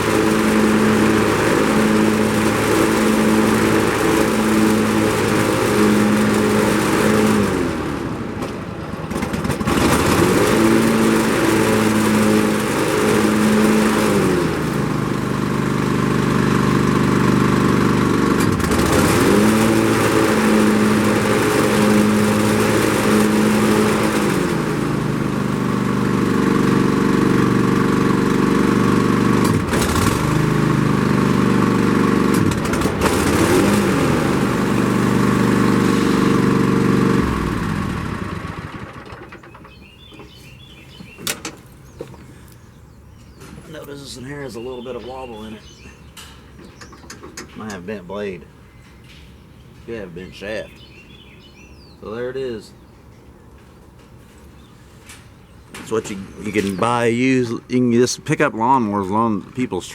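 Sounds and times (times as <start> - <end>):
riding mower engine: 0.0 - 59.9
faint birdsong: 39.0 - 59.9.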